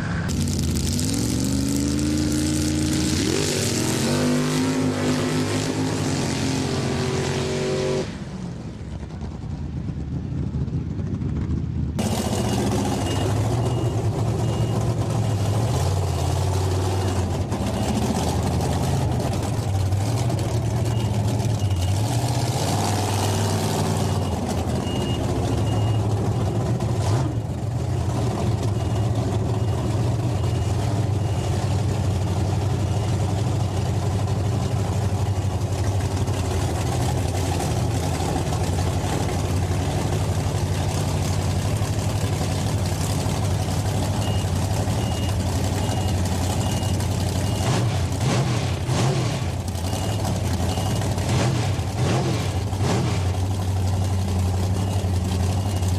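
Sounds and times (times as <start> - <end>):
heavy truck engine running: 0.0 - 55.9
faint high beep: 12.0 - 18.3, 20.8 - 22.1, 22.8 - 26.8, 28.6 - 33.8, 44.1 - 47.8, 49.8 - 51.0, 53.9 - 55.9.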